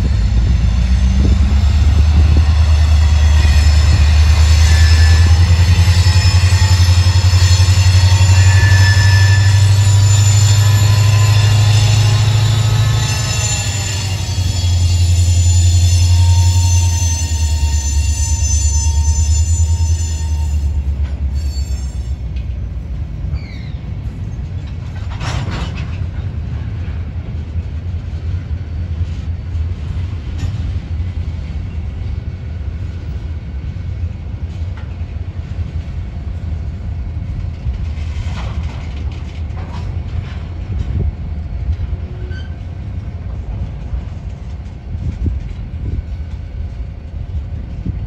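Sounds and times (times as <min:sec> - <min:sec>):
locomotive low drone: 0:00.0 - 0:48.0
train cars rumbling over rails: 0:00.0 - 0:48.0
train clanks: 0:00.0 - 0:48.0
high wheel squeal: 0:00.2 - 0:22.3, 0:42.2 - 0:42.6.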